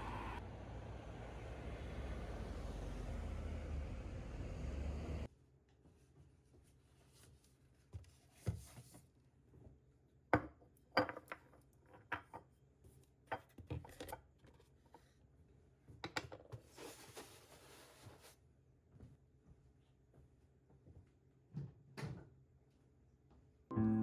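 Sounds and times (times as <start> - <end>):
soft rustle: 16.7 - 18.4.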